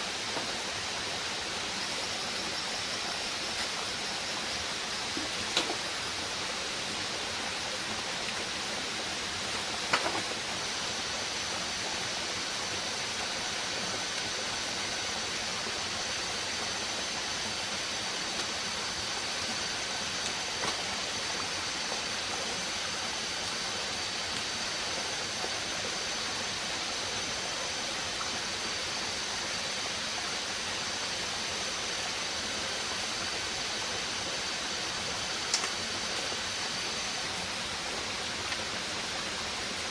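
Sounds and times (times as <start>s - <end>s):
rushing forest ambience: 0.0s - 39.9s.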